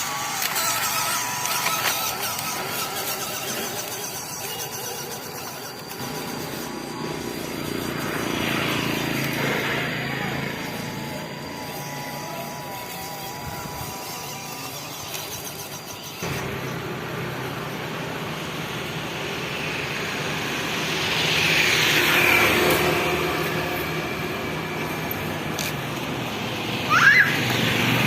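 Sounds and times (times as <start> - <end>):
toy truck motor whirring: 0.0 - 17.8, 18.8 - 28.0.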